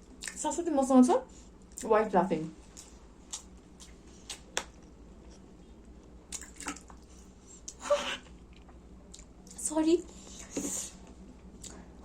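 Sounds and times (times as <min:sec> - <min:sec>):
soft wet squishes: 0:02.6 - 0:12.0.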